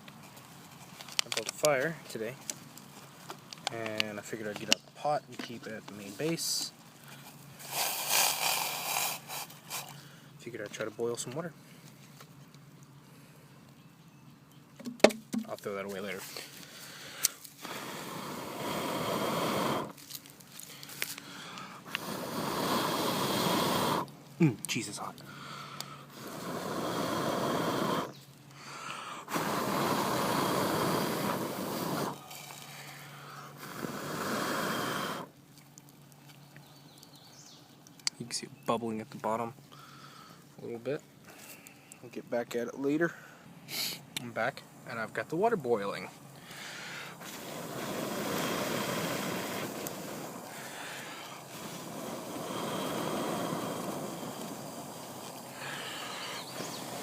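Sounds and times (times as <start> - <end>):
person blowing hard: 7.6 - 9.9, 16.9 - 20.0, 21.3 - 24.1, 25.3 - 35.4, 46.5 - 57.0
pot of water boiling: 47.2 - 57.0.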